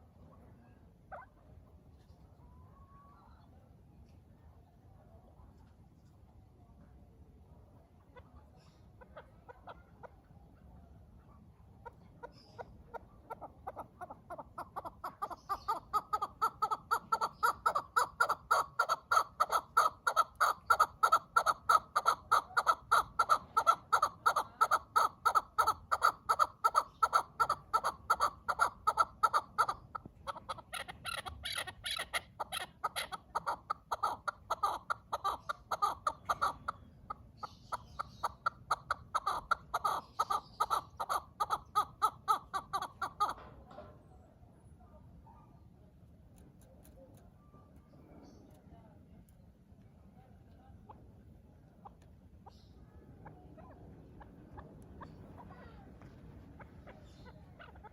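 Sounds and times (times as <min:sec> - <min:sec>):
partridge clucking calls: 0:08.0 - 0:10.7, 0:11.7 - 0:43.9, 0:50.5 - 0:57.9.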